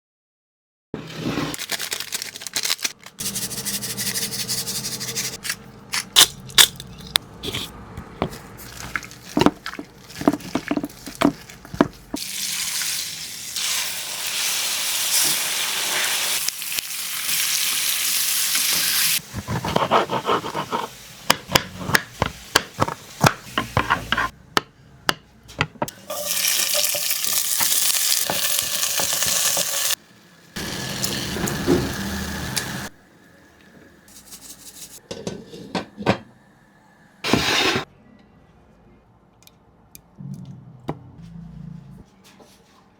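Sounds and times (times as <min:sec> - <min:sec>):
food sizzling in a pan: 0:12.2 - 0:19.2, 0:26.0 - 0:32.9
utensil scraping a pan: 0:22.8 - 0:24.3, 0:37.3 - 0:37.9.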